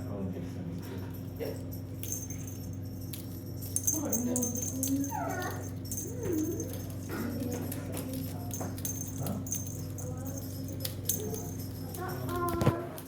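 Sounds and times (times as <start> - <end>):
low room hum: 0.0 - 13.0
light clicks and jingling: 0.7 - 13.0.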